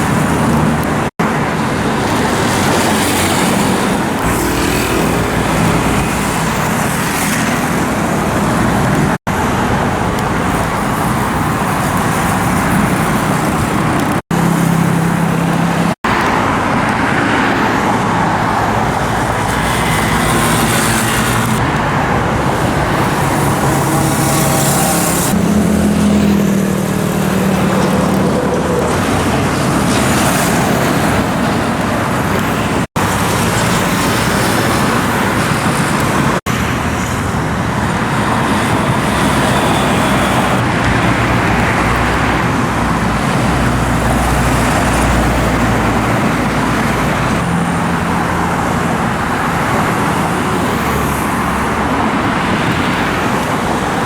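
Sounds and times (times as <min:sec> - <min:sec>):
motorcycles passing: 0:00.0 - 0:54.0.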